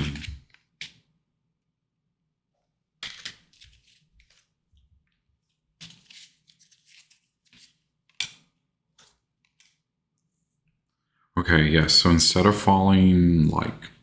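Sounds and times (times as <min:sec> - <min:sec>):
cards rustling and sliding: 0:00.0 - 0:01.0, 0:03.0 - 0:04.7, 0:05.4 - 0:09.8.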